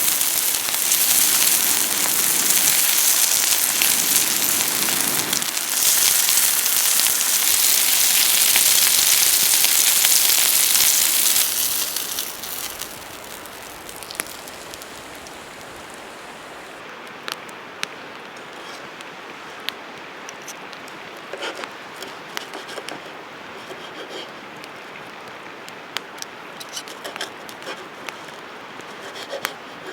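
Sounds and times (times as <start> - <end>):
loud steady hiss: 0.0 - 16.9
campfire crackling and popping: 0.0 - 17.9.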